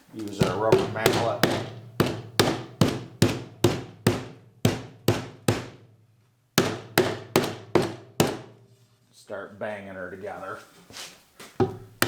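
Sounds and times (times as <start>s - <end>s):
rubber mallet striking wood: 0.2s - 5.9s, 6.6s - 8.6s.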